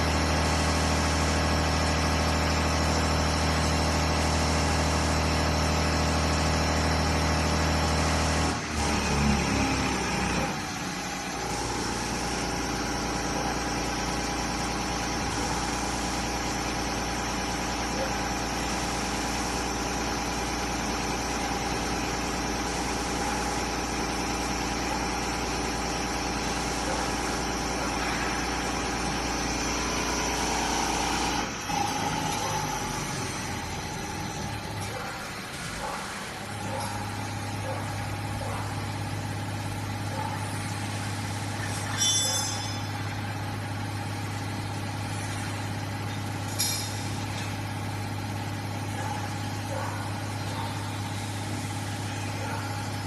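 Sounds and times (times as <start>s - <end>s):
motor and pump humming: 0.0s - 53.0s.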